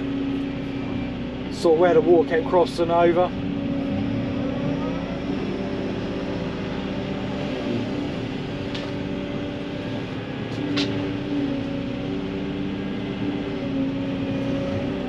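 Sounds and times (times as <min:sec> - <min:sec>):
digger diesel engine running: 0:00.0 - 0:15.0.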